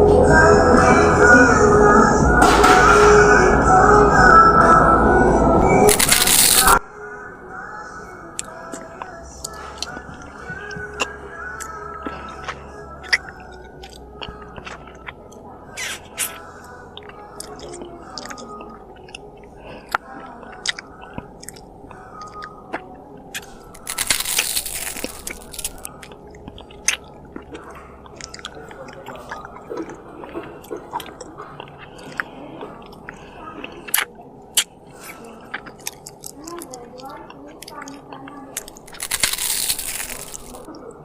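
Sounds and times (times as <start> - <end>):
crunchy rustling: 5.9 - 6.8, 23.4 - 25.9, 38.6 - 40.7
person chewing food: 5.9 - 6.8, 8.3 - 40.8
wet mouth clicks: 25.0 - 33.2.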